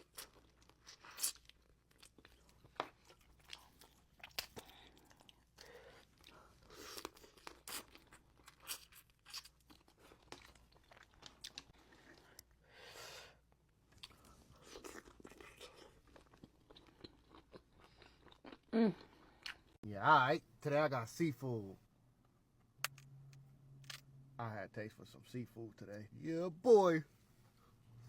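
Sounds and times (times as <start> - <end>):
person crunching and chewing: 0.0 - 12.6, 13.9 - 19.8.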